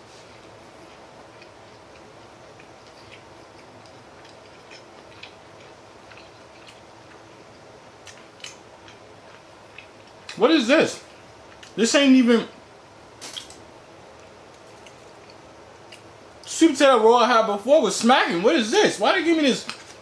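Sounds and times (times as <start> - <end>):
low room hum: 0.0 - 20.0
man chewing with mouth clicks: 0.3 - 10.4, 11.0 - 11.8, 14.2 - 16.5.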